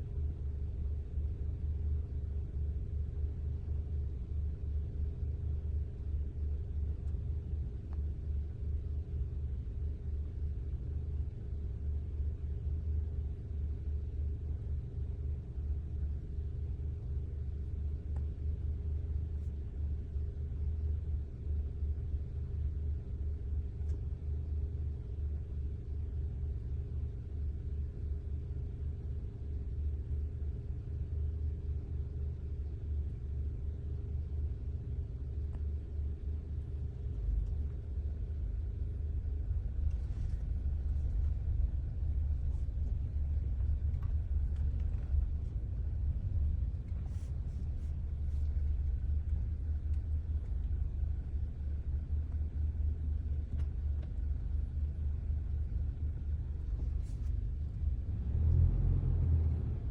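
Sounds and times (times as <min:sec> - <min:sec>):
vehicle engine idling: 0:00.0 - 0:59.9.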